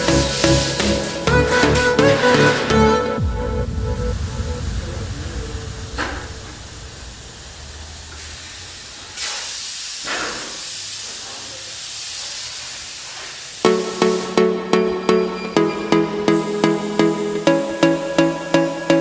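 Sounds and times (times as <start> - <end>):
steady hiss: 0.0 - 1.3, 3.2 - 14.4
low rumble: 1.7 - 9.0.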